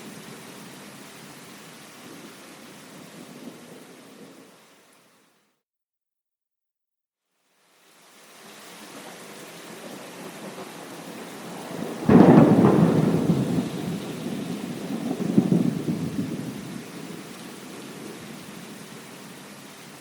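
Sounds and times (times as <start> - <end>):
steady rain: 0.0 - 5.6, 7.3 - 20.0
thunder rumbling: 9.7 - 18.9.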